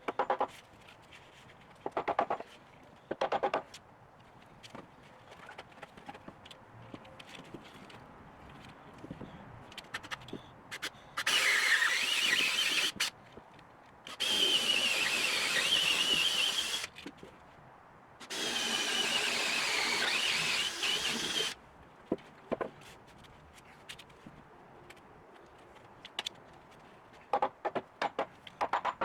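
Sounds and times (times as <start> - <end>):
power drill whining into wood: 11.2 - 13.1, 14.1 - 16.9, 18.3 - 21.6.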